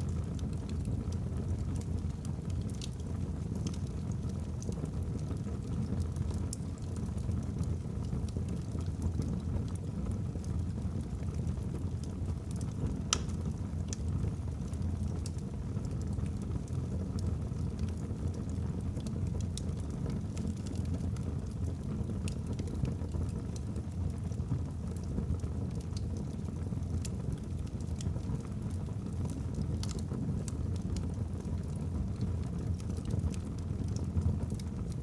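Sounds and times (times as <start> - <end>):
logs crackling and popping: 0.0 - 35.0.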